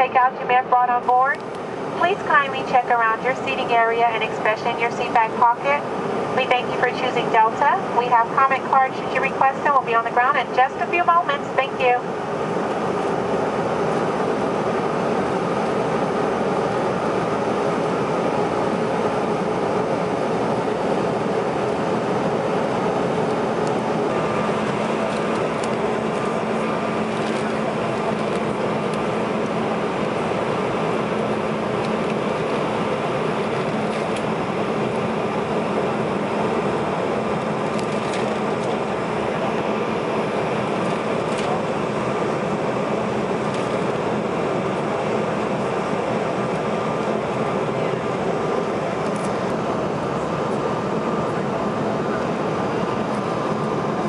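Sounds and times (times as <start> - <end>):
jet cabin airflow and engine hum: 0.0 - 54.0
steady low hum: 0.0 - 54.0.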